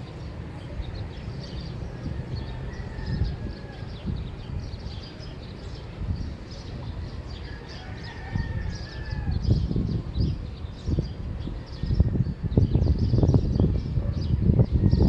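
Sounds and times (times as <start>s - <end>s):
small birds chirping: 0.0s - 15.0s
rooster crowing: 2.1s - 4.0s, 7.4s - 9.5s.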